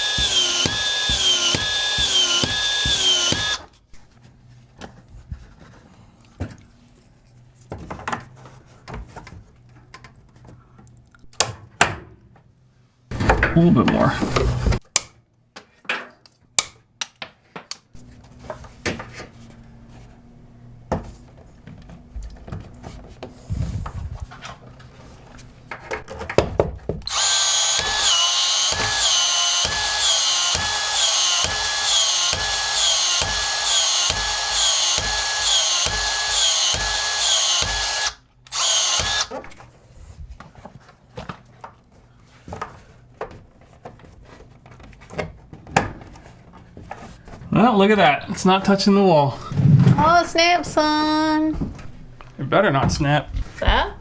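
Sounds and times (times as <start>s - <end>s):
power drill running: 0.0s - 3.7s, 27.0s - 39.6s.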